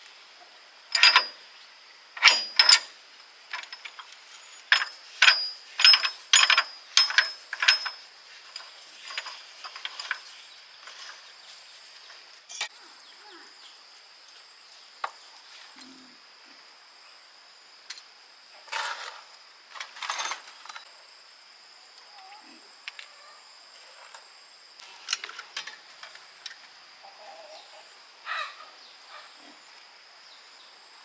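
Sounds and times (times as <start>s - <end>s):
metallic clicks of hand tools: 0.9s - 1.4s, 2.2s - 2.9s, 3.5s - 11.2s.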